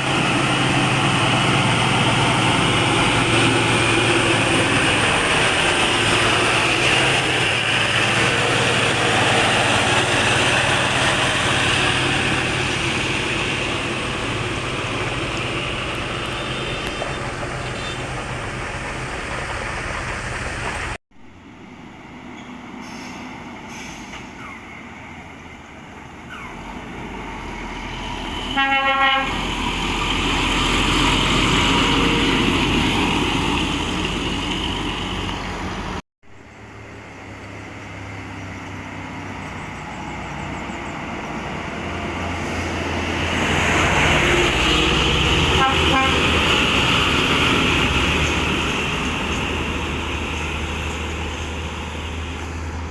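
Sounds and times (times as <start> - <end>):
heavy truck running: 0.0 - 52.9
truck horn toot: 16.2 - 18.2, 28.3 - 29.5, 44.6 - 46.4.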